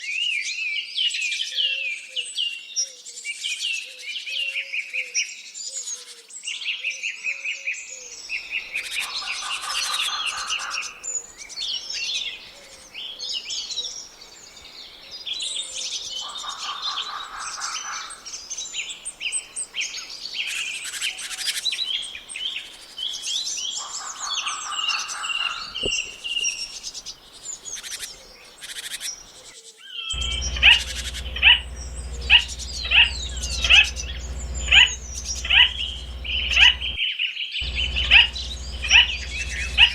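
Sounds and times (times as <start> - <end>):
birds singing and chirping: 30.2 - 37.0, 37.6 - 39.9
buzzing bird trill: 30.2 - 37.0, 37.6 - 39.9
low steady hum: 30.2 - 37.0, 37.6 - 39.9.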